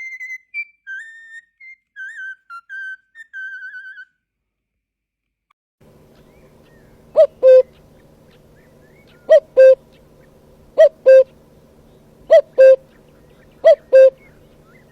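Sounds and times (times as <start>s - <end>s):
bird two-note hooting call: 6.2s - 14.9s.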